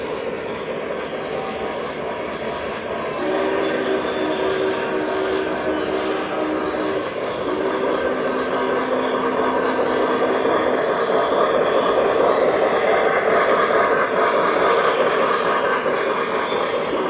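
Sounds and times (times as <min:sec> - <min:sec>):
model train wheels rumbling: 0:00.0 - 0:17.0.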